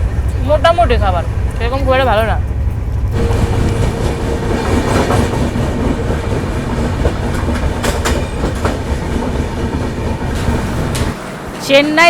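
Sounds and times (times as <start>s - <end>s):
train wheels rumbling on track: 0.0s - 12.0s
wheels clacking over rail joints: 2.4s - 11.7s.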